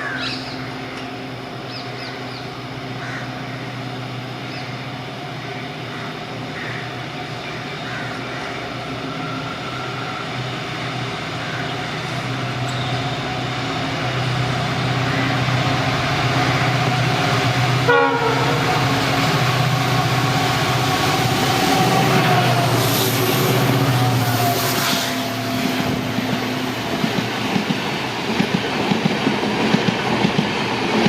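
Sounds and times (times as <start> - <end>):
diesel locomotives running hard: 0.0 - 31.0
locomotive horn blast: 15.0 - 26.6.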